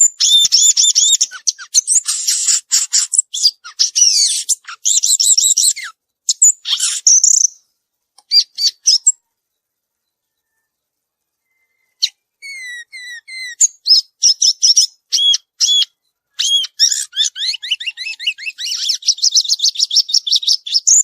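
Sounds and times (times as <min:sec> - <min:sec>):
bird singing high chirps and trills: 0:00.0 - 0:21.0.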